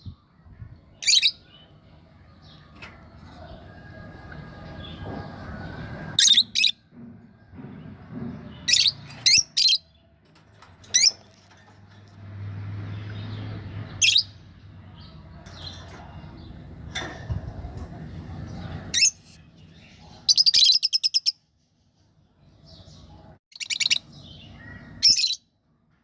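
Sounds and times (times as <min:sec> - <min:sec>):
bird high-pitched chirps: 0:23.5 - 0:25.4.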